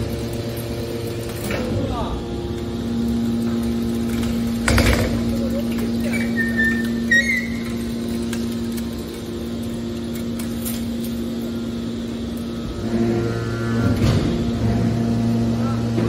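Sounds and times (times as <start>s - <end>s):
machine humming: 0.0s - 16.0s
high squeal: 6.1s - 7.9s.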